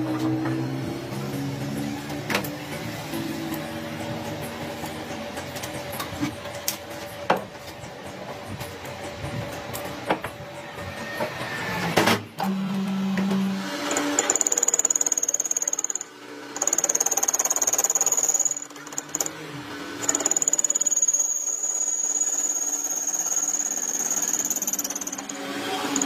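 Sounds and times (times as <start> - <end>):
power tool whining: 10.8 - 26.0.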